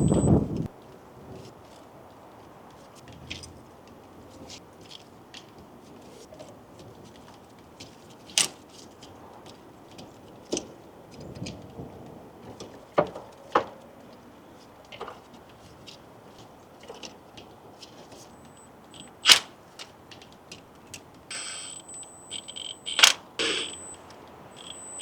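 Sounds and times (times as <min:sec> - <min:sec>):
hand tools clicking: 0:18.4 - 0:19.5.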